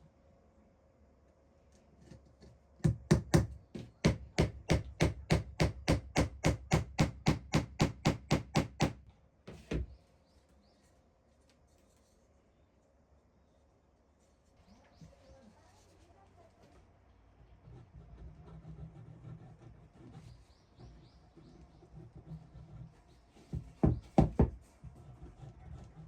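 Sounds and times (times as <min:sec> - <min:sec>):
hammer striking wood: 0:02.8 - 0:09.0, 0:23.5 - 0:24.6.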